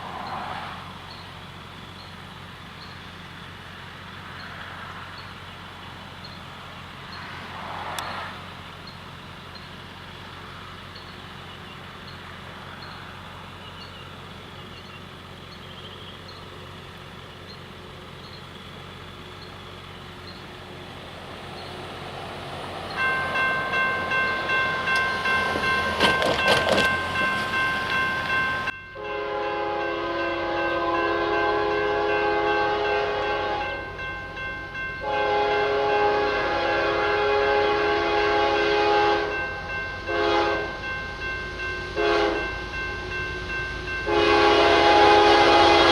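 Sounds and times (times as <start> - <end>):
crossing signal bells ringing: 0.0 - 7.4, 8.0 - 45.9
diesel locomotive: 0.0 - 45.9
train air horn blasts: 29.0 - 34.0, 35.0 - 41.0, 41.7 - 43.1, 43.9 - 45.9.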